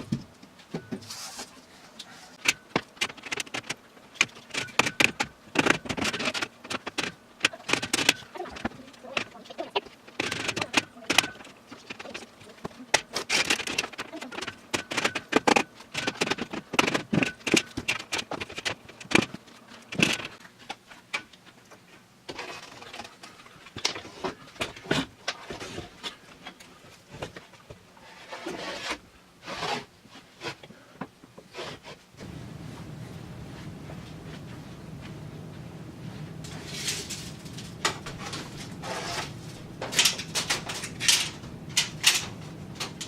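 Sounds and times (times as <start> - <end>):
hard objects clicking and rattling: 2.4 - 27.4, 36.4 - 43.0.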